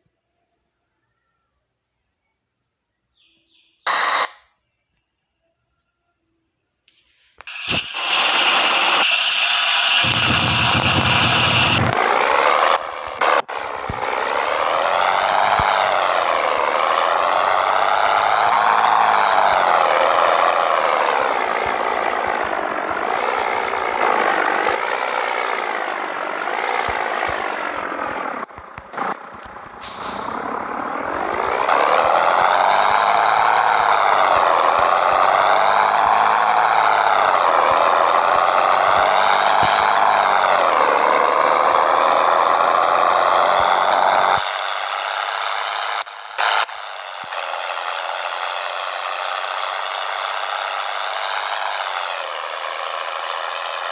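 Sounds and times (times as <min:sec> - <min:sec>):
air hiss: 0:06.9 - 0:11.9, 0:29.8 - 0:30.8
diesel truck engine pulling away: 0:07.5 - 0:53.9.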